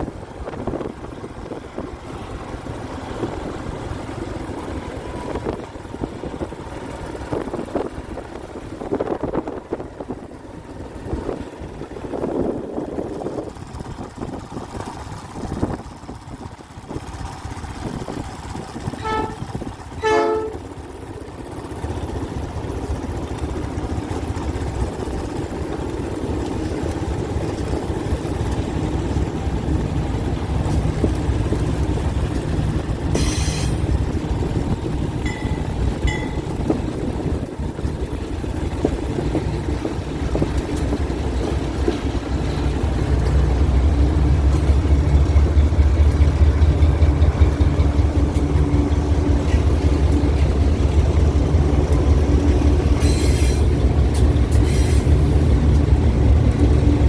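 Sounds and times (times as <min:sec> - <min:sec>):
train engine rumble: 0:00.0 - 0:57.0
locomotive horn blasts: 0:18.9 - 0:20.8.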